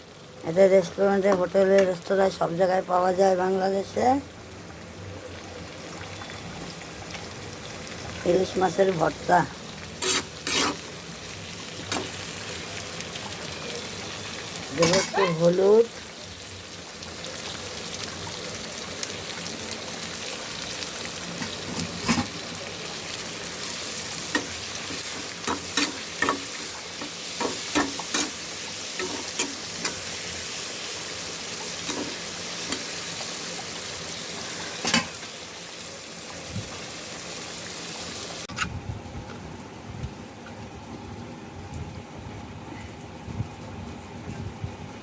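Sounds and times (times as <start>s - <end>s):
onion and garlic sizzling in oil: 0.0s - 39.3s
spatula scraping a pan: 10.0s - 11.0s.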